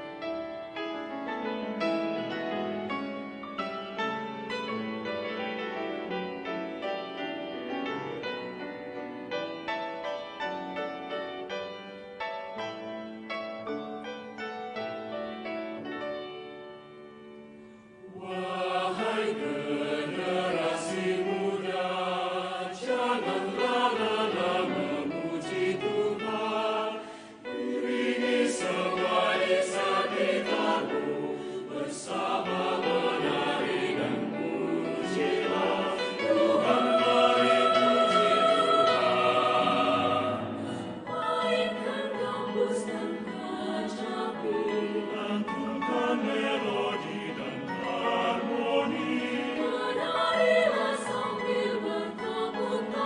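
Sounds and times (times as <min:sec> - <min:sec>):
choir singing: 0:16.6 - 0:53.0.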